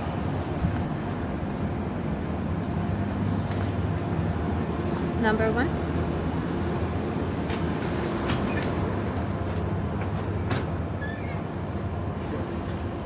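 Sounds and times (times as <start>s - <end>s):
train rumble and hum: 0.0s - 13.0s.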